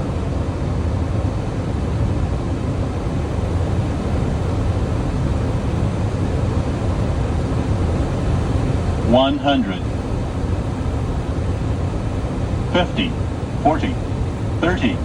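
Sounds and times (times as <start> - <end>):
cockpit airflow and engine rumble: 0.0 - 15.0.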